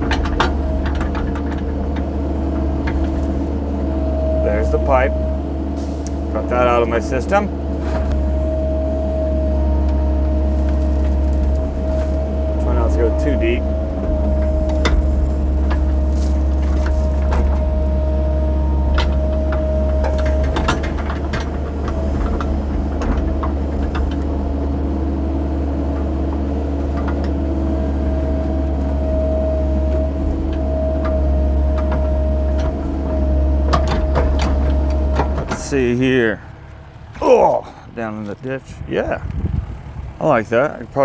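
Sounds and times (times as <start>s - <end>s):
steady whine: 0.0s - 38.6s
excavator diesel engine running: 0.0s - 41.0s
bucket clunking on rock: 9.4s - 24.6s, 26.0s - 36.0s.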